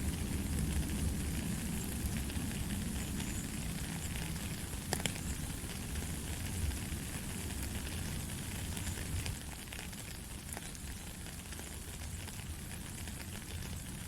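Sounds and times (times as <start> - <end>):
light rain hiss: 0.0 - 14.0.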